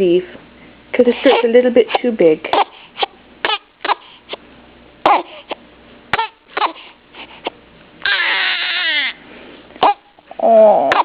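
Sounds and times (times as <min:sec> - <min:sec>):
baby crying: 0:02.6 - 0:04.2, 0:05.0 - 0:06.9, 0:08.0 - 0:09.2, 0:09.8 - 0:10.0.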